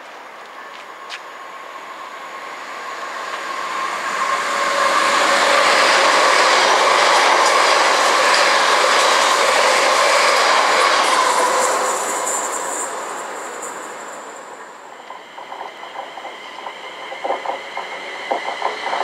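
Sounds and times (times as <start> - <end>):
train passing at speed: 0.0 - 19.0
wheels clickety-clack: 4.8 - 14.3, 15.0 - 19.0.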